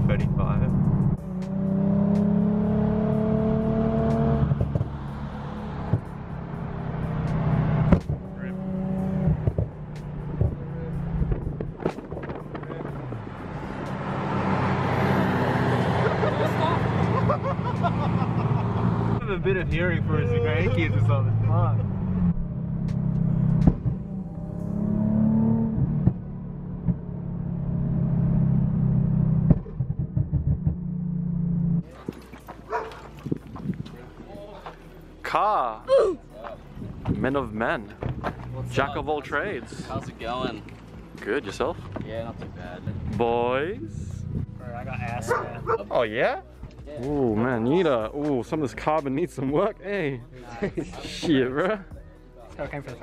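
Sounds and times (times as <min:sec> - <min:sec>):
car engine droning: 0:00.0 - 0:35.9, 0:36.6 - 0:49.8
car engine from inside cabin: 0:18.6 - 0:31.8.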